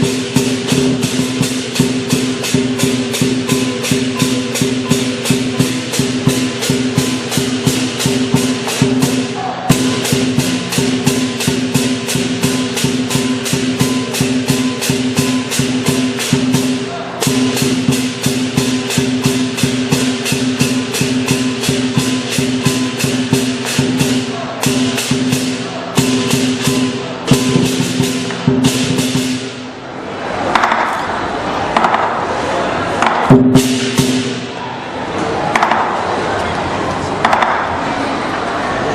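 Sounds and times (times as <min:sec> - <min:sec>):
ringing gong: 0:00.0 - 0:29.3
drum beating rapid rhythm: 0:00.0 - 0:29.6, 0:33.0 - 0:34.6
cymbals crashing: 0:00.0 - 0:36.2.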